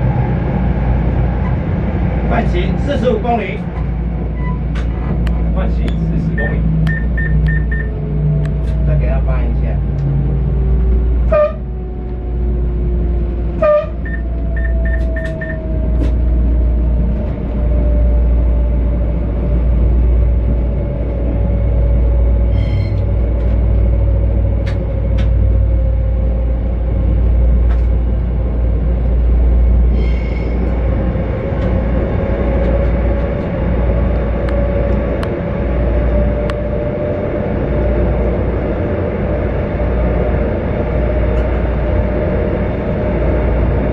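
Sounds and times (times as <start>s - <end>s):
electric train rumble: 0.0s - 43.9s
quick beeps: 6.4s - 7.9s.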